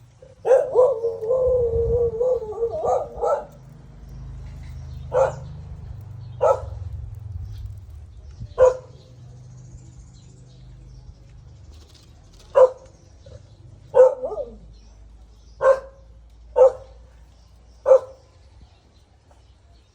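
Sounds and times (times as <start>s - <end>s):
dog barking: 0.2s - 3.6s, 5.1s - 5.5s, 6.4s - 6.9s, 8.6s - 9.0s, 12.5s - 12.9s, 13.9s - 14.6s, 15.6s - 17.0s, 17.8s - 18.2s.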